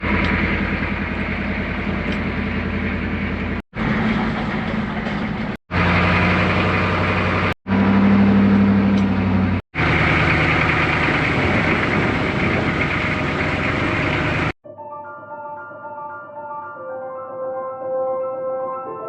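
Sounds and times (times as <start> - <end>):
farm machinery engines running: 0.0 - 14.6.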